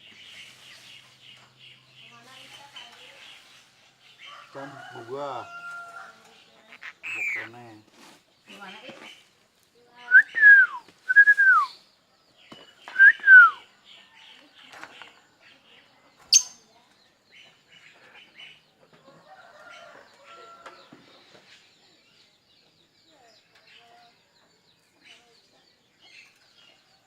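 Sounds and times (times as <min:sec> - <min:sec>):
soft bird chirps: 0:00.0 - 0:04.9, 0:05.5 - 0:27.0
bird whistled calls: 0:10.1 - 0:11.8, 0:12.9 - 0:13.6, 0:16.3 - 0:16.6.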